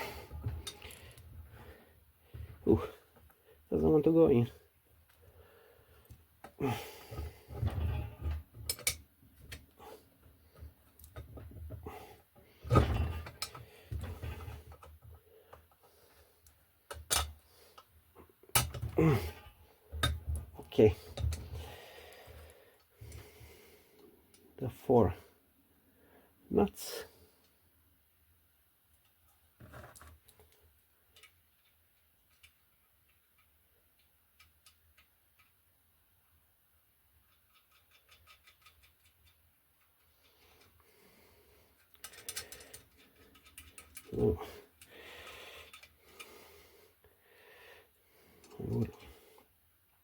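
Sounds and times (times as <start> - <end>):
metal parts and tools clinking: 7.5 - 9.6, 16.9 - 17.4
metallic clicks of small parts: 8.7 - 9.6, 16.4 - 17.9, 18.5 - 18.9, 29.8 - 35.7, 37.1 - 40.8, 41.8 - 46.3.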